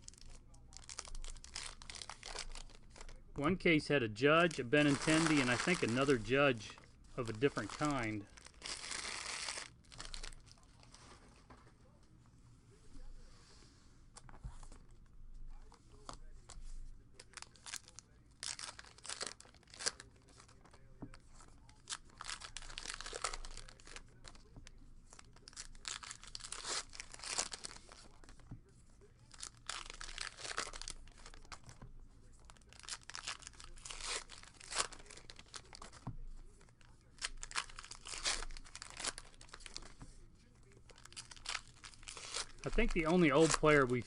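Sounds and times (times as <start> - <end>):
wrappers tearing and crinkling: 0.0 - 3.2, 4.4 - 11.0, 17.2 - 24.5, 25.1 - 28.4, 29.2 - 40.0, 40.6 - 44.0
cards shuffled by hand: 4.4 - 11.6, 40.8 - 44.0.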